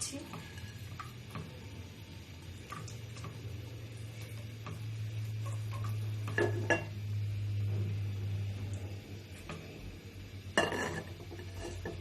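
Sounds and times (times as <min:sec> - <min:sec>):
low hum: 0:00.3 - 0:11.8
metal utensils tapping on pan: 0:10.6 - 0:12.0.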